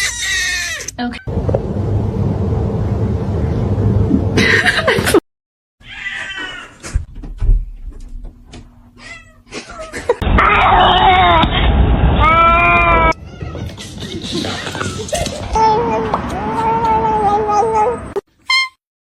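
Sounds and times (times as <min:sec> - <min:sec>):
cats meowing: 0:00.0 - 0:01.2, 0:05.8 - 0:06.8, 0:09.0 - 0:11.5, 0:12.2 - 0:18.0.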